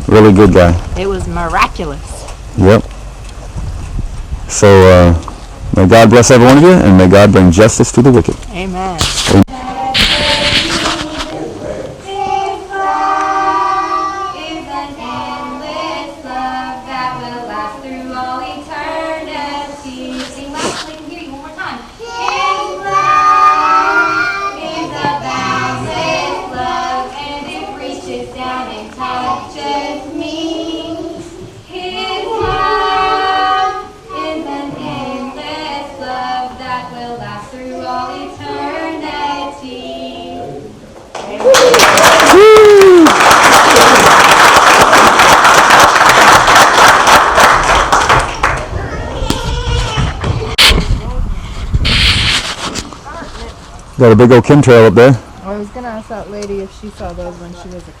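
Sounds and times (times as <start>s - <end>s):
children singing: 9.5s - 20.6s, 22.0s - 40.8s
singing in long held notes: 9.5s - 20.6s, 22.0s - 40.9s.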